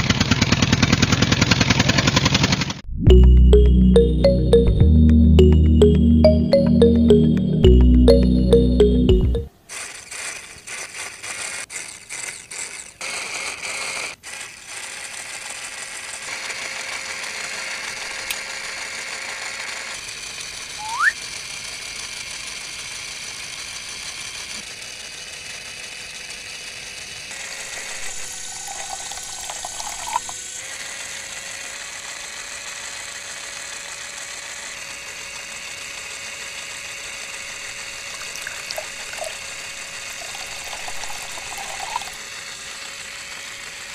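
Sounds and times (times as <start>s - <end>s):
small electric motor whirring: 9.7s - 43.9s
short rising squeak: 20.8s - 21.2s.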